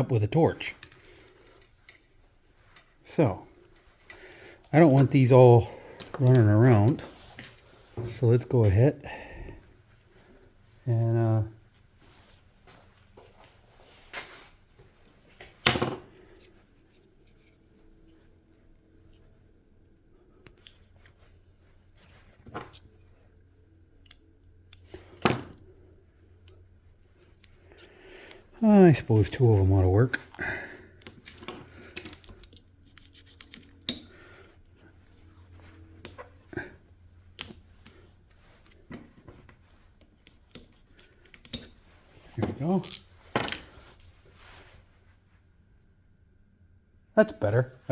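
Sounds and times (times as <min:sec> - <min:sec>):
small parts and tools clicking: 0:00.7 - 0:02.9, 0:39.9 - 0:41.8, 0:42.4 - 0:43.7.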